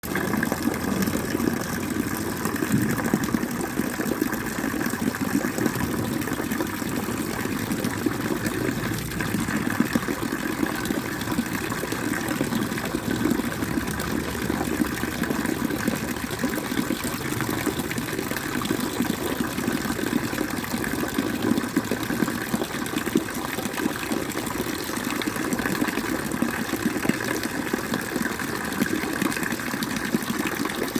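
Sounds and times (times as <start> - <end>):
water gushing: 0.0 - 30.9.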